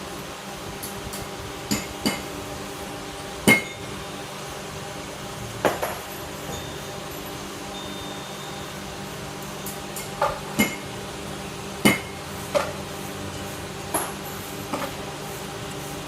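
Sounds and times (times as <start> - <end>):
spot welder metallic clanks: 3.4 - 4.0, 9.4 - 11.0, 11.8 - 15.1.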